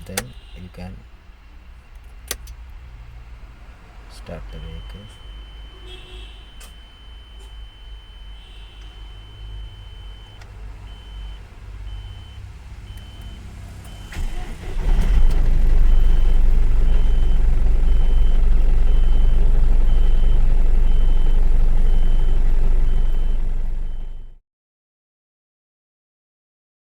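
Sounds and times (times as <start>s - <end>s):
dashboard warning beeps: 0.0s - 2.4s, 4.1s - 24.4s
diesel engine cranking and running: 6.6s - 24.4s.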